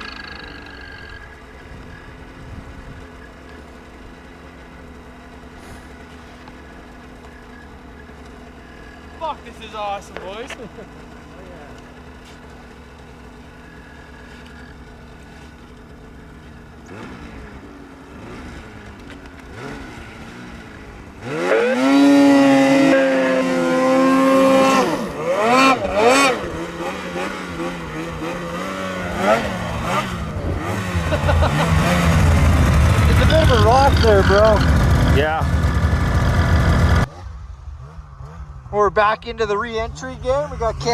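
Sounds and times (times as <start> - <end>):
snowmobile engine revving: 0.0 - 4.1, 16.1 - 40.9.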